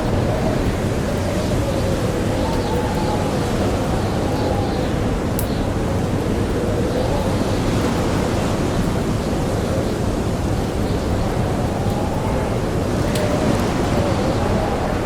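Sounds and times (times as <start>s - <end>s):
blizzard wind rushing: 0.0s - 15.0s
faint wind howl: 0.0s - 15.0s.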